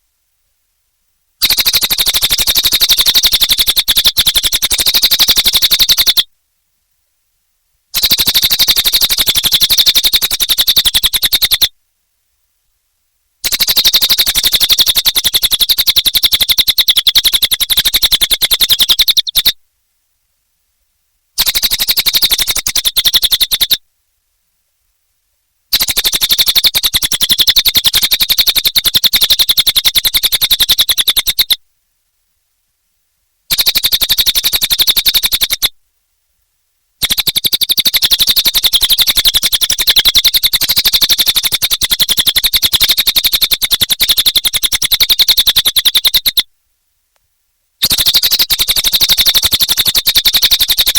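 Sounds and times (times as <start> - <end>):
bird trilling: 1.4 - 6.3, 8.0 - 11.7, 13.4 - 19.6, 21.4 - 23.8, 25.7 - 31.6, 33.5 - 35.7, 37.0 - 46.4, 47.8 - 50.9.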